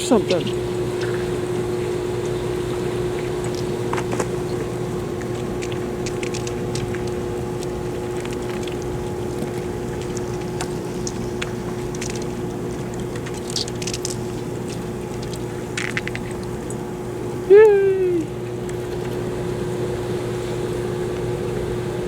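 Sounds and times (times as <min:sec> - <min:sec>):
constant rushing noise: 0:00.0 - 0:16.5
motor humming: 0:00.0 - 0:22.0.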